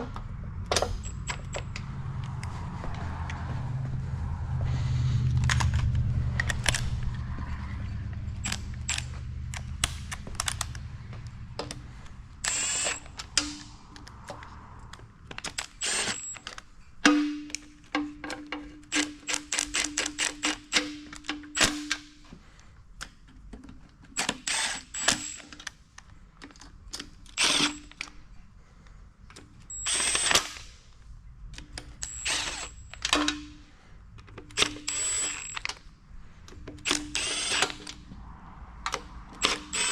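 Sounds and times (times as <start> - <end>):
low rumble: 0.0 - 12.5, 38.0 - 39.5
ratchet wrench clicking: 8.3 - 10.9, 12.4 - 14.3, 18.9 - 22.0, 34.5 - 35.8, 36.8 - 38.0, 38.9 - 39.9.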